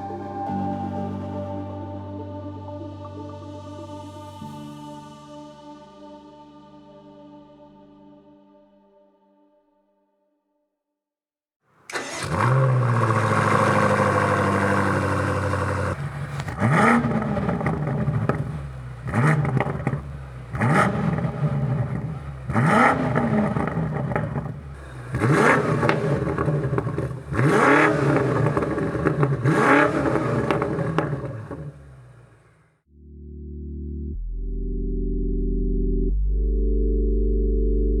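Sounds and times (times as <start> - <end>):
car engine revving: 11.9 - 32.7.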